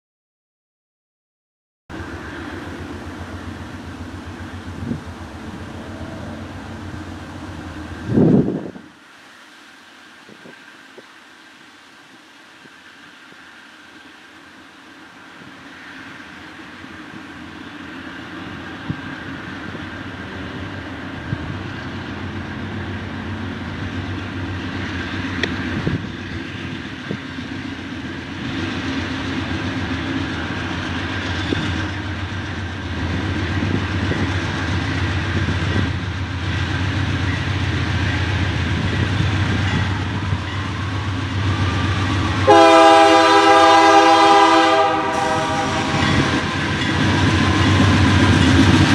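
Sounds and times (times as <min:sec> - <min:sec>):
diesel locomotive engine rumble: 0:01.9 - 0:48.9
rail noise: 0:01.9 - 0:48.9
locomotive horn: 0:41.6 - 0:47.0.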